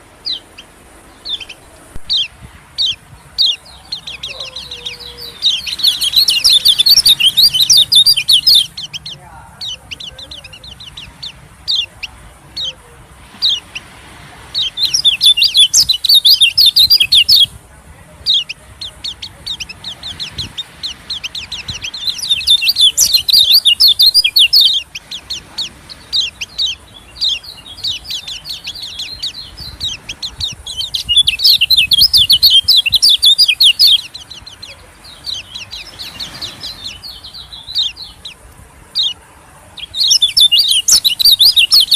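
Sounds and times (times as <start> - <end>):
bird twittering chatter: 0.0 - 17.6, 18.2 - 39.2, 39.8 - 41.9.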